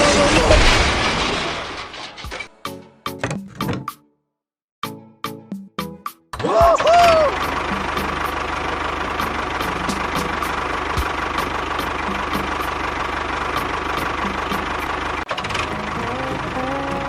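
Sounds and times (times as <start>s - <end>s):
small engine idling: 6.8s - 17.0s.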